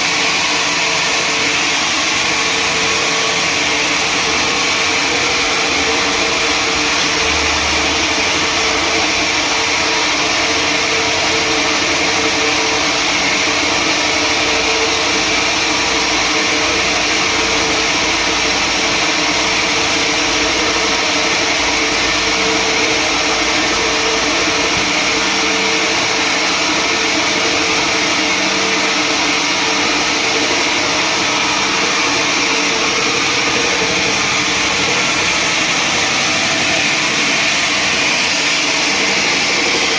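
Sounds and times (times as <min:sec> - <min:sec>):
constant whine: 0:00.0 - 0:39.9
sawmill motor and saw noise: 0:00.0 - 0:39.9.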